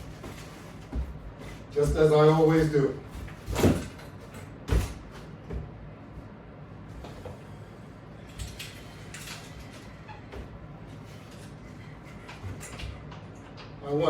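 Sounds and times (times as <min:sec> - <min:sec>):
faint bumps and rustles: 0:00.0 - 0:07.4.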